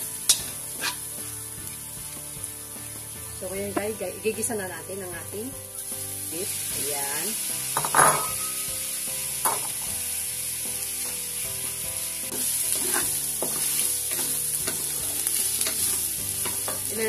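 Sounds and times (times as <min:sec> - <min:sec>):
beef sizzling in a wok: 0:00.0 - 0:17.0
wooden spatula scraping pan: 0:00.7 - 0:01.0, 0:12.3 - 0:16.9.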